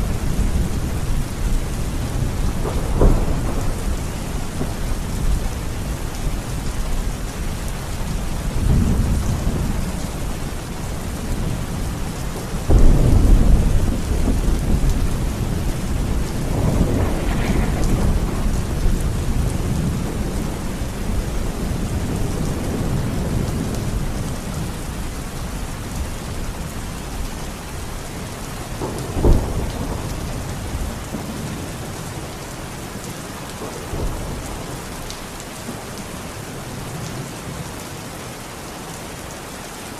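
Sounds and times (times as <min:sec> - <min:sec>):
sharp crack of thunder: 0:00.0 - 0:05.9, 0:12.6 - 0:24.7, 0:28.8 - 0:31.8
rolling thunder: 0:00.0 - 0:11.8, 0:12.6 - 0:25.0, 0:28.2 - 0:32.2
heavy rain: 0:00.0 - 0:39.9
loud thunderclap: 0:02.0 - 0:05.8, 0:12.6 - 0:24.0, 0:28.8 - 0:31.7.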